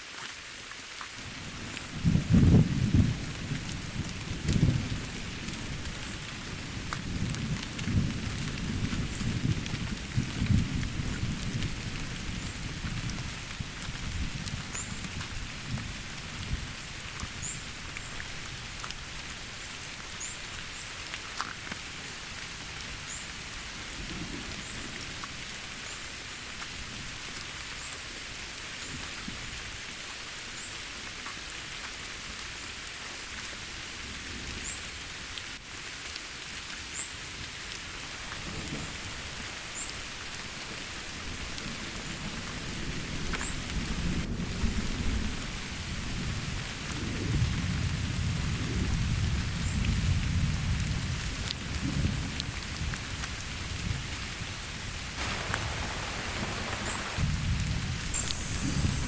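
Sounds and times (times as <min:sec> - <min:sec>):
rain on foliage: 0:00.0 - 0:59.0
low rumble: 0:55.2 - 0:59.0
high-pitched whine: 0:58.1 - 0:59.0.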